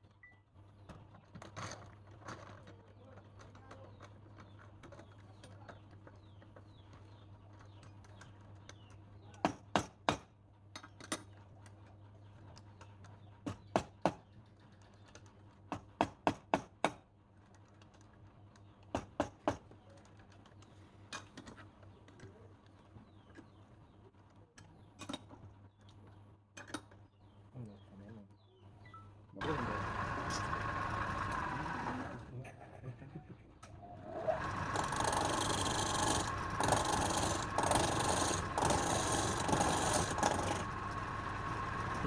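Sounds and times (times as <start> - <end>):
steady low hum: 28.7 - 42.0.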